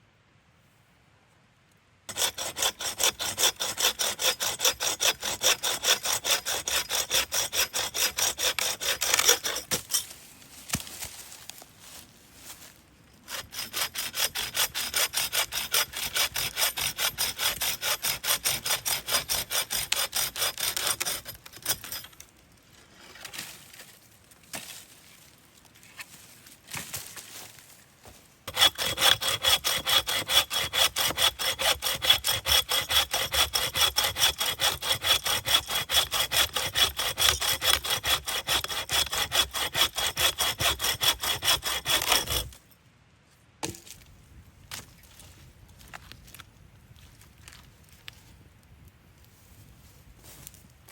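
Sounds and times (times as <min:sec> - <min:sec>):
hand saw cutting wood: 0:02.1 - 0:10.1, 0:13.3 - 0:22.2, 0:28.1 - 0:42.6.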